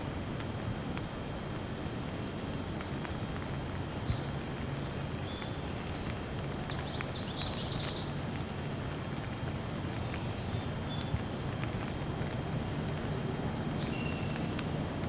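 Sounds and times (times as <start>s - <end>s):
steady rain: 0.0s - 15.0s
bird chirping: 3.7s - 8.2s, 13.8s - 14.6s
raindrop taps: 5.3s - 15.0s.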